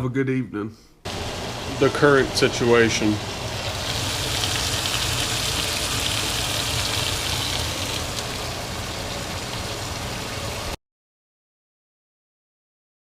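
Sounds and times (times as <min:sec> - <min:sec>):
meat sizzling in a frying pan: 0:01.1 - 0:10.8.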